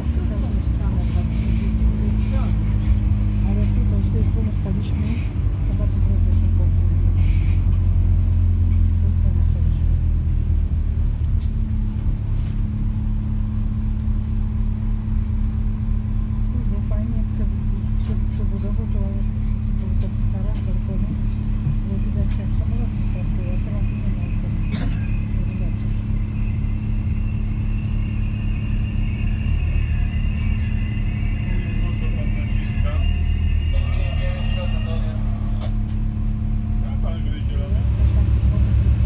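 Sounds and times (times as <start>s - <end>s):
constant hum: 0.0s - 39.0s
train running rumble: 0.0s - 39.0s
faint high whine: 23.7s - 35.6s.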